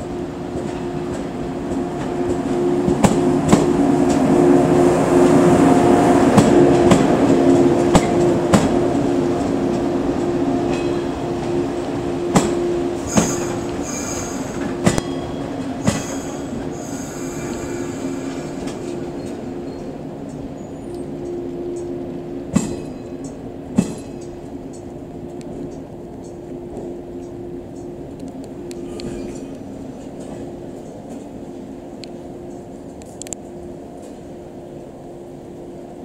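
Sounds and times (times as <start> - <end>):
electric train humming: 0.0 - 36.0
high-pitched squeals: 12.9 - 20.0.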